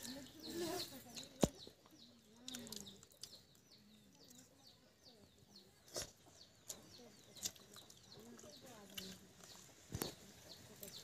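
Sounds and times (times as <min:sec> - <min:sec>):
high chirps of small birds: 0:00.0 - 0:11.0.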